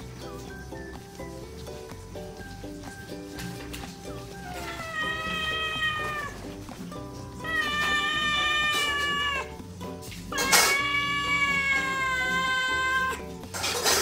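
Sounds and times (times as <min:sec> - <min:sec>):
background music: 0:00.0 - 0:14.0
cat yowling: 0:04.4 - 0:06.6, 0:07.4 - 0:09.6, 0:10.3 - 0:13.4.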